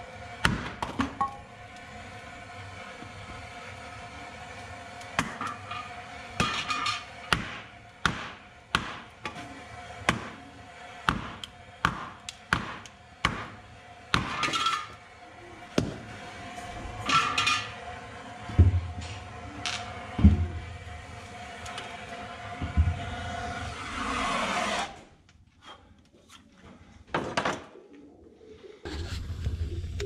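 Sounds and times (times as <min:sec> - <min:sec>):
chopping tool striking firewood: 0:07.3 - 0:09.0, 0:11.1 - 0:13.5.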